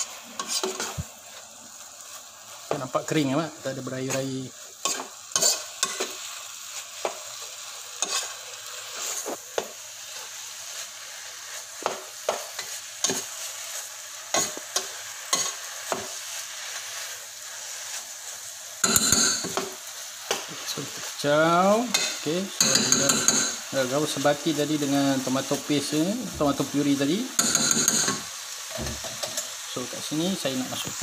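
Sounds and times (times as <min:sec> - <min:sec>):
meat sizzling in a pot: 0:00.0 - 0:31.0
metal spoon scraping a pot: 0:04.9 - 0:06.0.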